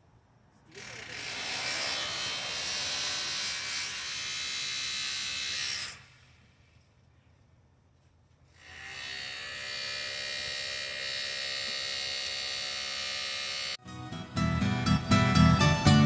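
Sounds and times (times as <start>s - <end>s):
electric sewing machine running: 0.7s - 6.0s, 8.6s - 13.8s.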